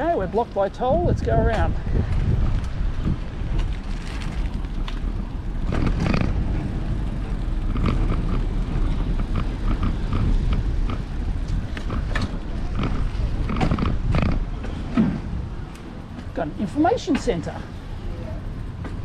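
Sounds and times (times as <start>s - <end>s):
wind buffeting microphone: 0.0s - 19.0s
bicycle clicks and rattles: 1.5s - 14.8s.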